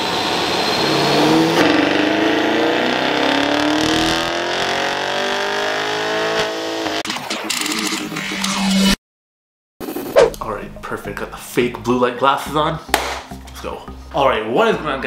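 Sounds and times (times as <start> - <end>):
car engine at full throttle: 0.0 - 7.0.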